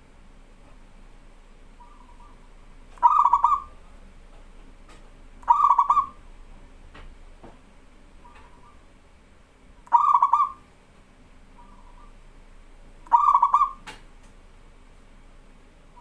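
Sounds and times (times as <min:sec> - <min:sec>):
dove cooing: 0:01.7 - 0:04.0, 0:05.4 - 0:06.3, 0:08.2 - 0:08.9, 0:09.9 - 0:10.7, 0:11.5 - 0:12.2, 0:13.0 - 0:14.0.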